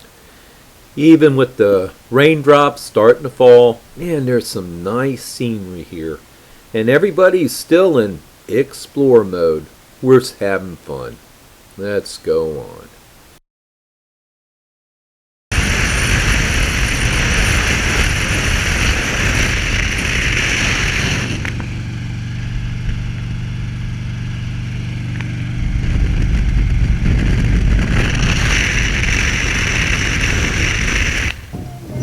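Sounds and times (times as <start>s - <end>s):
wind rushing over microphone: 15.5s - 21.6s, 25.4s - 32.0s
motorcycle engine drone: 15.6s - 32.0s.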